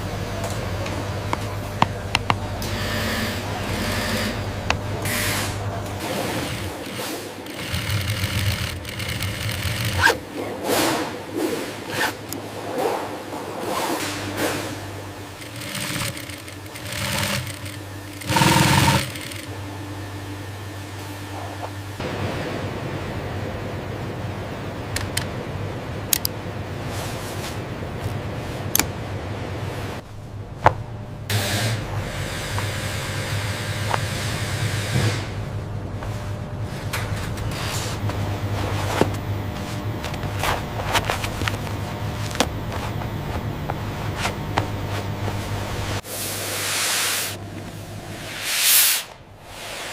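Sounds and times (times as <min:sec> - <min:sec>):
workshop machinery humming: 0:00.0 - 0:49.9
industrial sewing machine running: 0:01.1 - 0:10.8, 0:14.9 - 0:19.6.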